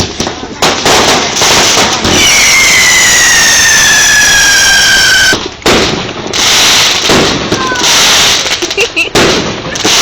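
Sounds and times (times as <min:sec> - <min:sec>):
whistling firework: 0:01.3 - 0:09.0.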